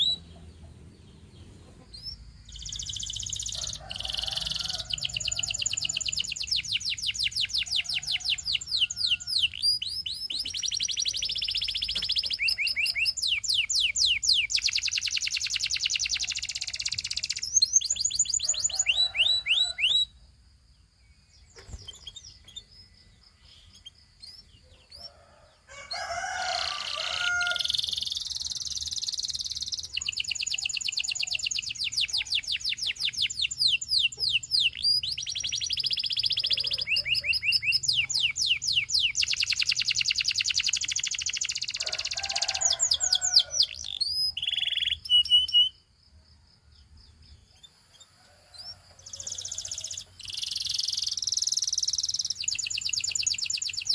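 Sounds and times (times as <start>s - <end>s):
canary singing trills: 0.0s - 20.2s, 21.1s - 46.0s, 46.9s - 53.9s.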